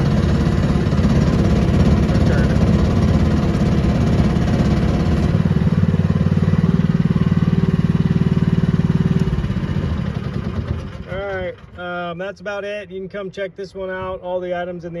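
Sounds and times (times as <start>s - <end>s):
small gasoline engine running: 0.0s - 11.8s.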